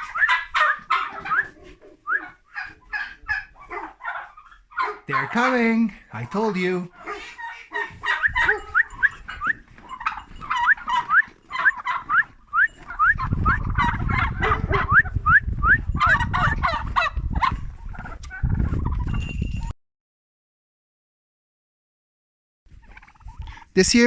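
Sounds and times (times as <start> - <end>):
turkeys calling: 0.0 - 19.2, 22.7 - 24.0.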